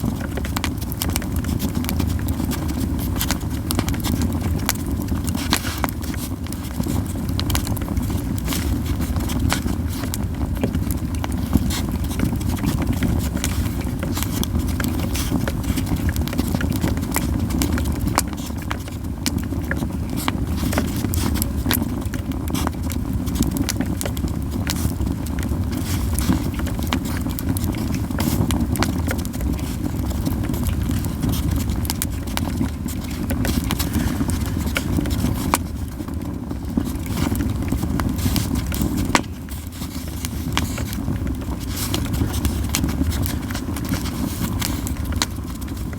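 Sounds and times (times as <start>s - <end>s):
campfire crackling and popping: 0.0s - 45.9s
low fire rumble: 0.0s - 45.9s.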